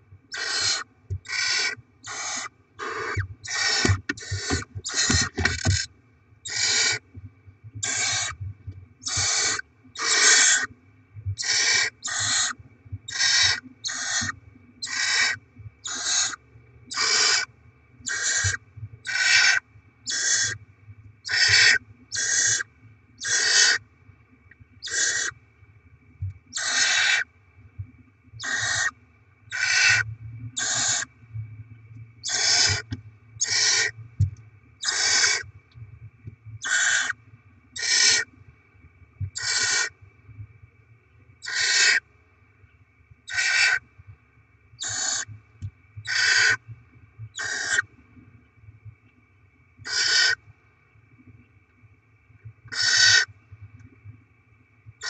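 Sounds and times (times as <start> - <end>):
owl chicks hissing: 0.3 - 7.0, 7.8 - 8.4, 9.0 - 10.7, 11.4 - 17.5, 18.1 - 20.6, 21.3 - 23.8, 24.8 - 25.3, 26.5 - 27.2, 28.4 - 28.9, 29.5 - 30.0, 30.6 - 31.1, 32.2 - 33.9, 34.8 - 35.5, 36.6 - 37.2, 37.8 - 38.3, 39.4 - 39.9, 41.4 - 42.0, 43.3 - 43.8, 44.8 - 45.3, 46.0 - 46.6, 47.4 - 47.8, 49.8 - 50.4, 52.7 - 53.3.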